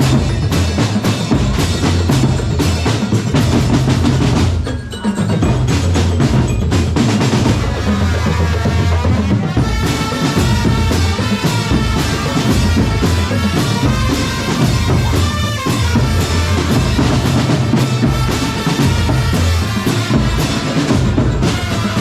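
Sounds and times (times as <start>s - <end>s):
bass and snare drums: 0.0s - 22.0s.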